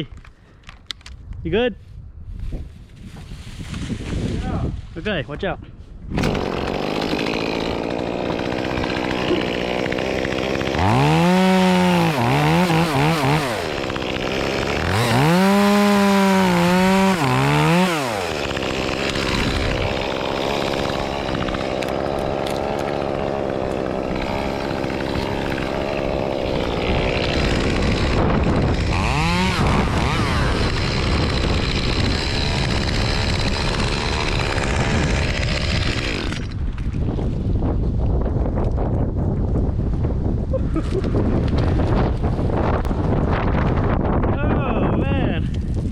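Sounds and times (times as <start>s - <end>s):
chainsaw idling and revving: 6.2s - 36.6s.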